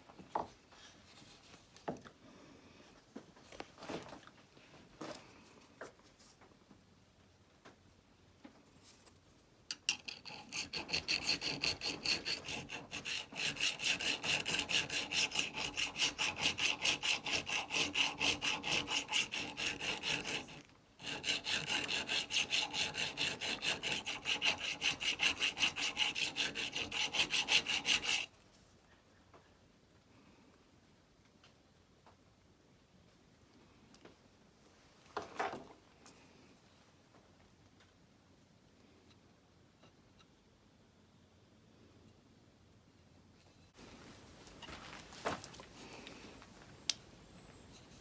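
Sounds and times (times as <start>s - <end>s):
chisel scraping on abrasive: 9.7s - 28.3s.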